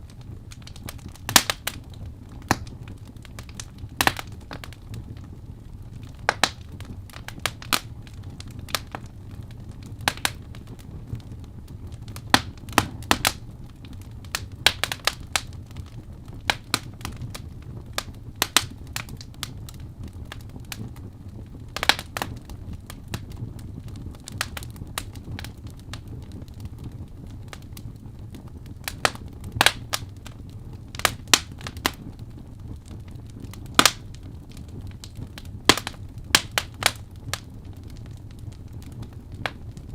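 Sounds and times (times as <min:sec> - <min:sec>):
logs crackling and popping: 0:00.0 - 0:39.9
rumble of flames: 0:00.0 - 0:39.9.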